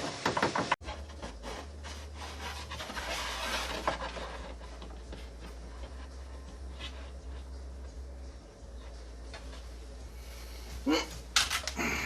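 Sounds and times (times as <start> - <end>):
wood rubbing and scraping: 0.0 - 7.9.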